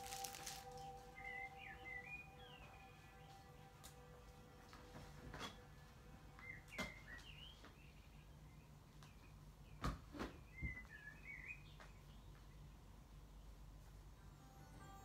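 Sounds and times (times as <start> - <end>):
faint bird chirps: 0.0 - 3.6
low room hum: 0.0 - 15.0.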